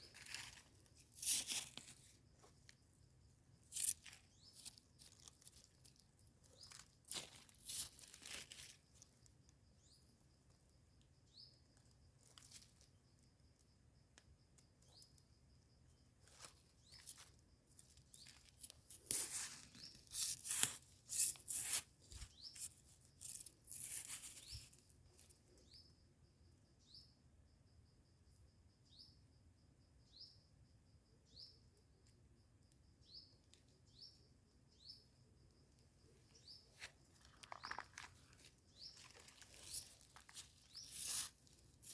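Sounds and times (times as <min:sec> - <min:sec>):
bird chirping: 0:06.4 - 0:06.9, 0:09.7 - 0:10.6, 0:11.2 - 0:11.9, 0:21.2 - 0:26.1, 0:26.7 - 0:27.2, 0:28.7 - 0:29.3, 0:30.0 - 0:31.8, 0:32.8 - 0:41.3
rustling and tearing in leaf litter: 0:06.7 - 0:08.8, 0:18.2 - 0:24.6.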